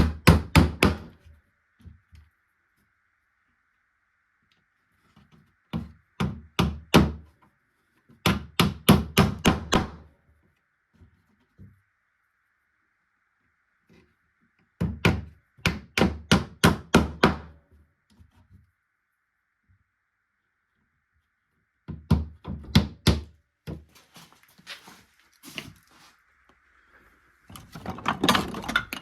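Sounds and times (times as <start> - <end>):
hammering on wood: 0.0 - 1.2, 5.7 - 7.3, 8.2 - 10.1, 14.8 - 17.6, 21.9 - 23.8.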